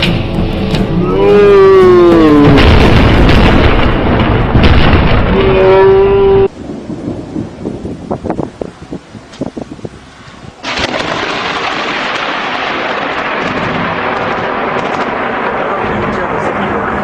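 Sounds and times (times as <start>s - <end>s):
person crying out: 1.0s - 2.7s, 5.3s - 6.5s
loud thunder crash: 1.2s - 8.5s, 10.6s - 17.0s
faint crackling thunder: 1.4s - 8.7s, 10.6s - 17.0s.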